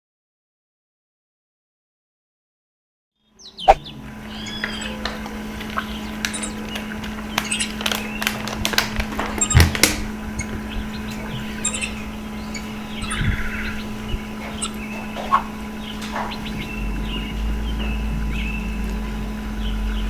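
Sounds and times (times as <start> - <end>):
bird chirping: 3.4 - 8.5, 9.3 - 20.0
steady low hum: 3.4 - 20.0.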